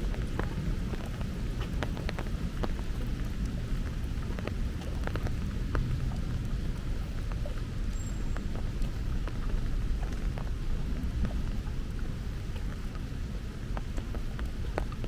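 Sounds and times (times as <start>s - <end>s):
heavy rain falling: 0.0s - 15.0s
low rumble: 0.0s - 15.0s.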